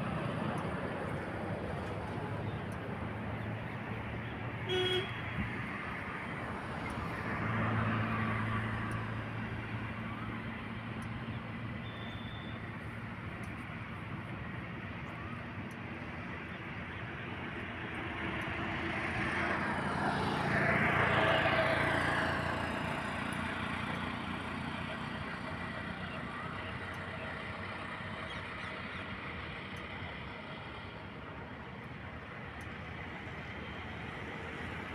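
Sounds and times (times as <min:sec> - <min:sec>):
road traffic: 0:00.0 - 0:34.9
vehicle passing by: 0:05.4 - 0:11.7, 0:17.8 - 0:28.2.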